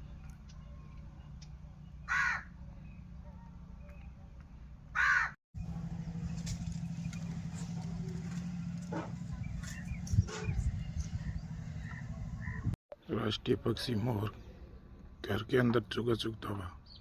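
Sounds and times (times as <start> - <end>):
steady low hum: 5.6 - 12.8
harsh bird calls: 9.3 - 12.8.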